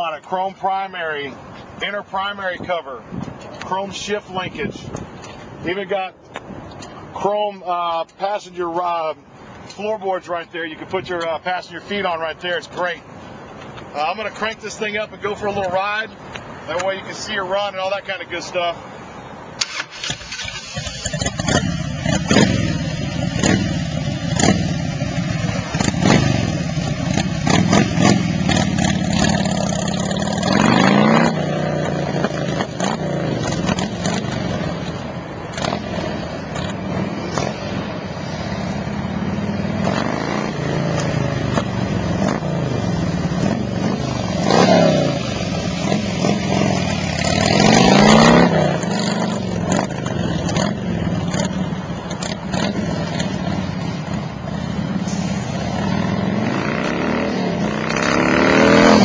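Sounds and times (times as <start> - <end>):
motorcycle engine revving: 19.6 - 59.0.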